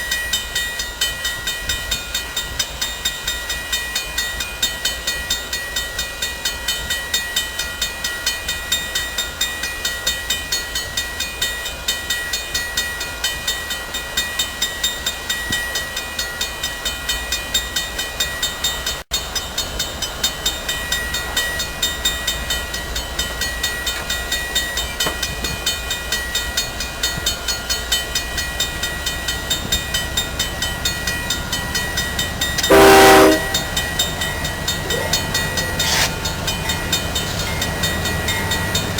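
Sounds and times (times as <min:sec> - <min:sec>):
train rhythmic clatter: 0:00.0 - 0:38.9
locomotive horn blast: 0:28.6 - 0:38.9.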